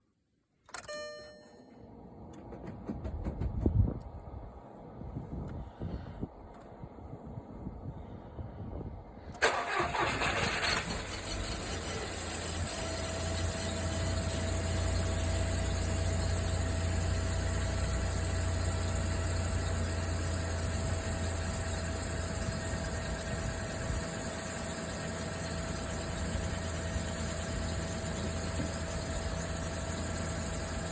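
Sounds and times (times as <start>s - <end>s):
car engine idling: 2.2s - 5.0s, 9.4s - 30.9s
starter motor cranking: 9.4s - 14.7s.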